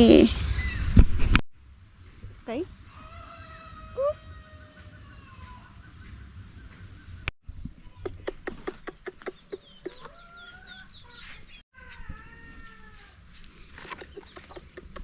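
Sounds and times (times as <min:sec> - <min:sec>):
chickens clucking: 0:07.8 - 0:12.2, 0:13.7 - 0:15.0
chicken gliding calls: 0:07.8 - 0:15.0.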